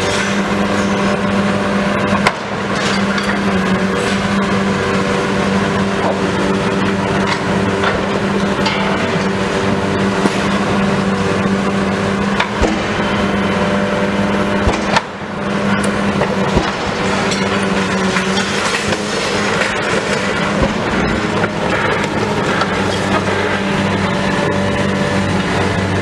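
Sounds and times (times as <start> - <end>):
demolition machinery engine hum: 0.0 - 26.0.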